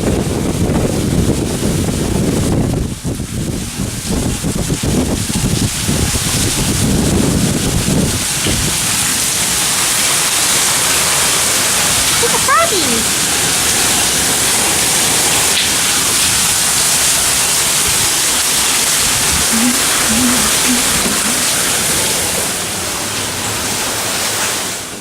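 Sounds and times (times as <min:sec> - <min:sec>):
wind gusts buffeting microphone: 0:00.0 - 0:09.0
heavy rain hissing: 0:00.1 - 0:25.0.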